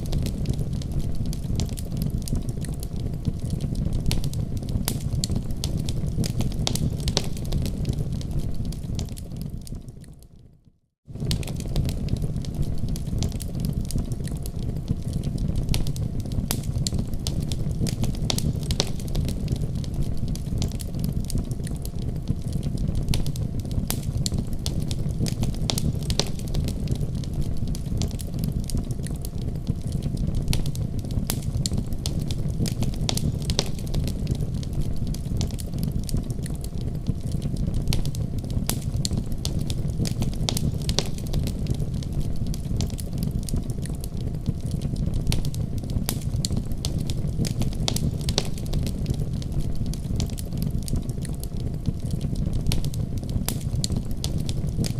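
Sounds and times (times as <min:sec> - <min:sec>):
wood fire crackling: 0:00.0 - 0:54.9
steady low rumble: 0:11.1 - 0:54.9
sharp pops and snaps: 0:11.2 - 0:54.9.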